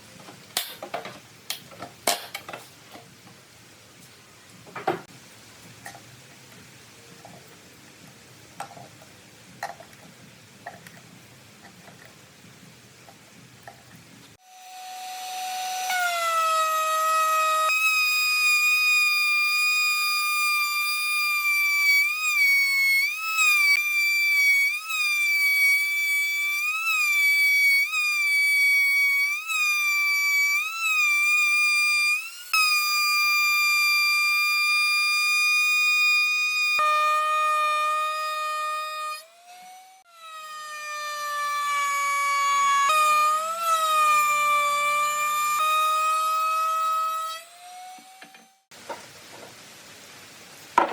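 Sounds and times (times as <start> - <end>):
power tool whining on wood: 14.4 - 48.7.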